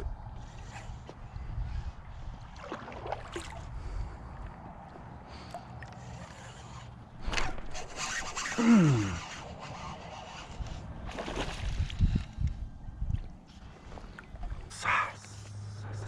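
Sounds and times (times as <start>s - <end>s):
scraping against a kayak: 6.1s - 8.6s.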